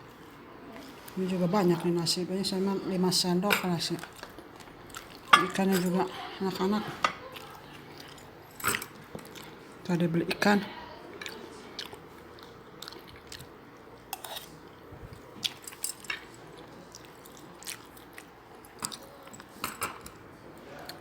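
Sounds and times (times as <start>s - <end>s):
person chewing food: 4.0s - 5.3s, 7.2s - 9.8s, 11.1s - 21.0s.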